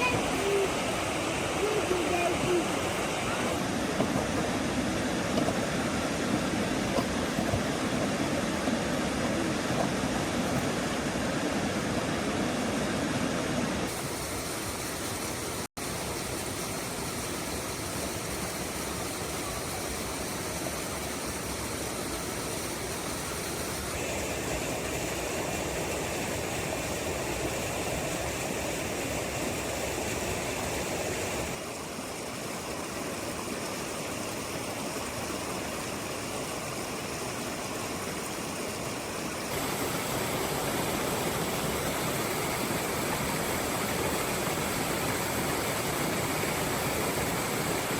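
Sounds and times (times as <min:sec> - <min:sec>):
heavy rain: 0:00.0 - 0:09.0, 0:39.4 - 0:47.9.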